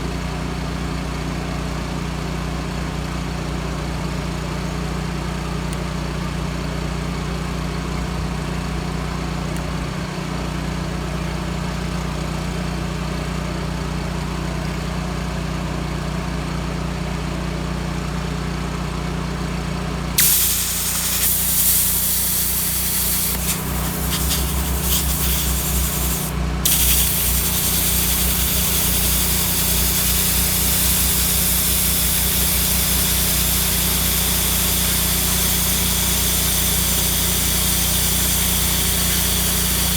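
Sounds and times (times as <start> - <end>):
welder generator engine running: 19.4 - 39.9
plasma cutter arc hissing: 20.2 - 39.9.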